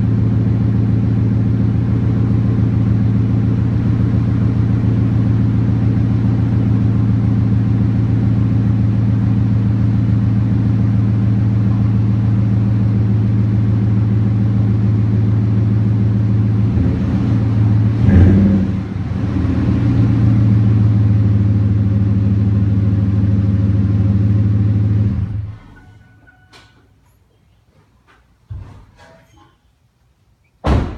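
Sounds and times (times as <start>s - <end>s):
truck engine idling: 0.0s - 26.4s.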